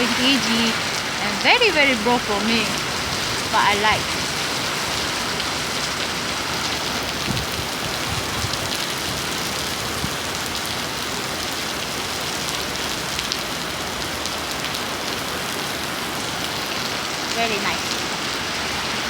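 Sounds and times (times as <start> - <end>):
raindrops ticking: 0.0 - 10.7
steady rain falling: 0.0 - 19.0.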